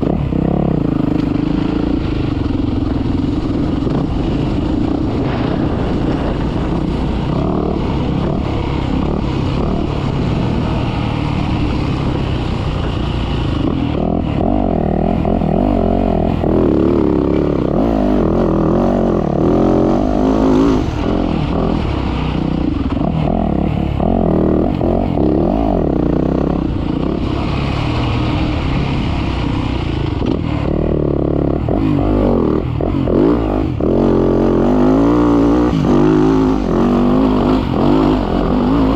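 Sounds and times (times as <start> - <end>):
dirt bike engine running hard: 0.0 - 38.9.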